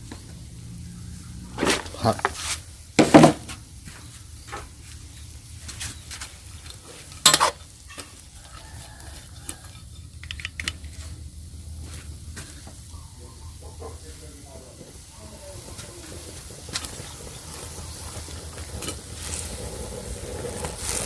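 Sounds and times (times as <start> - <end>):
light sizzling: 0.0 - 21.0.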